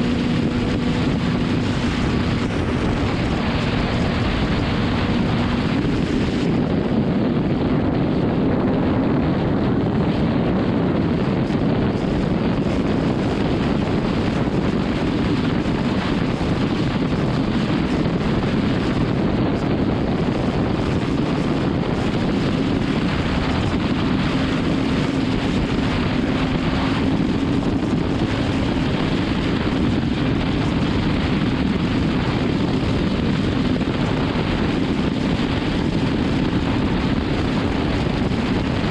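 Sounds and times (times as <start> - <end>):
motorcycle engine cruising: 0.0 - 38.9
wind on microphone: 0.0 - 38.9.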